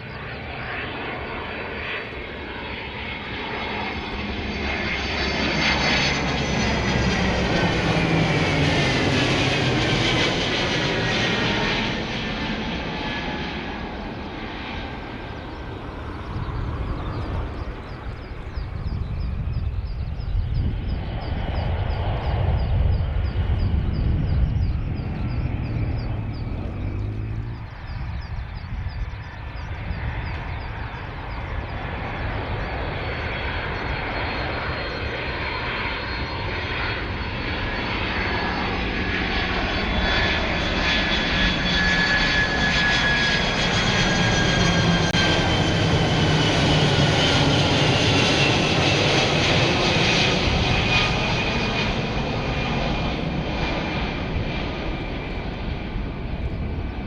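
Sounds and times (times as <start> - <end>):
high engine whine: 0.0 - 57.0
propeller aircraft flying past: 0.0 - 57.0.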